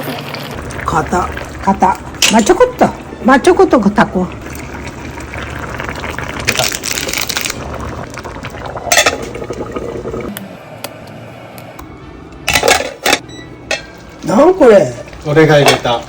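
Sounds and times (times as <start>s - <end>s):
liquid pouring into pot: 0.3s - 10.3s.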